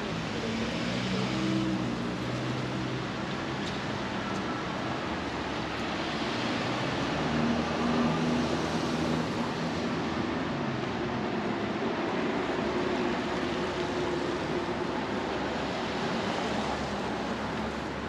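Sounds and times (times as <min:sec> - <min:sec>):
passing vehicle engines: 0:00.0 - 0:18.0.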